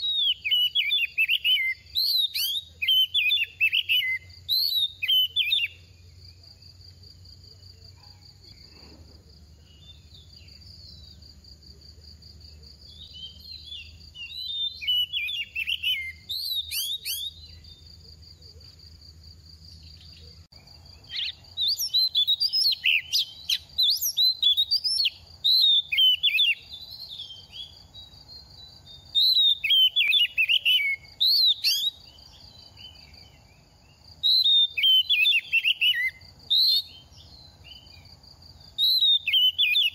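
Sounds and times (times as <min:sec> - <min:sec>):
bird singing whistled phrases: 0:00.0 - 0:05.9, 0:12.9 - 0:17.8, 0:21.1 - 0:32.2, 0:34.2 - 0:38.0, 0:38.8 - 0:39.9.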